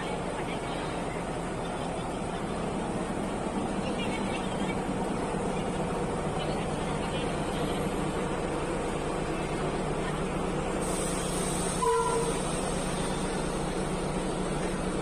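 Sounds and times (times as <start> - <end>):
diesel train running: 0.0 - 15.0
train horn toot: 11.8 - 12.4.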